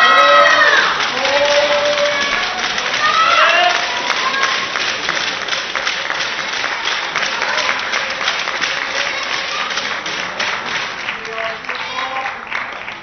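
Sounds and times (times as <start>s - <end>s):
crowd clapping: 0.0s - 13.0s
faint voices: 0.0s - 13.0s.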